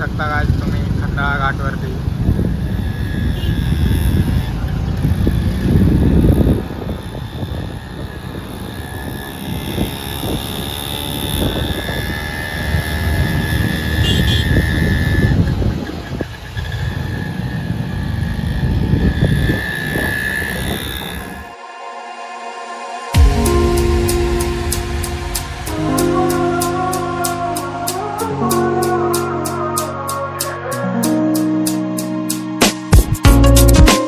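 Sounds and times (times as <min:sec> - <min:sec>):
wind buffeting on microphone: 0:00.0 - 0:21.5
motorcycle engine: 0:00.0 - 0:21.7, 0:23.1 - 0:33.8.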